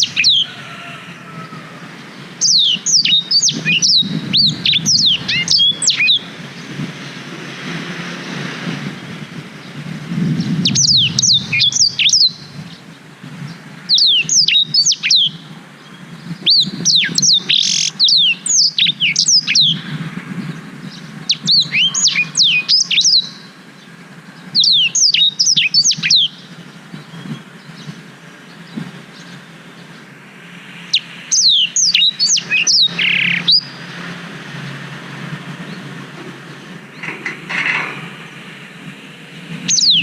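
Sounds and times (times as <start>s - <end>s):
bird whistling song: 0.0s - 1.7s, 2.4s - 6.7s, 10.4s - 12.8s, 13.9s - 19.9s, 20.9s - 23.5s, 24.5s - 30.0s, 30.8s - 33.9s, 39.6s - 40.0s.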